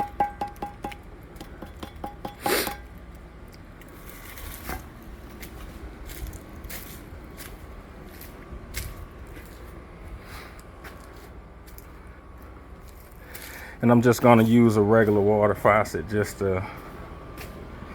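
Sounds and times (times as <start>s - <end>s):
ringing metal taps: 0.0s - 2.9s.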